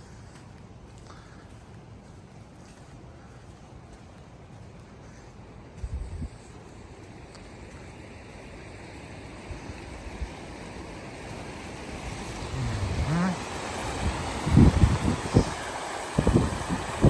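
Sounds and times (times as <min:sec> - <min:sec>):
wind thumps on microphone: 0:05.8 - 0:06.4, 0:12.4 - 0:17.0
water rushing: 0:06.6 - 0:17.0.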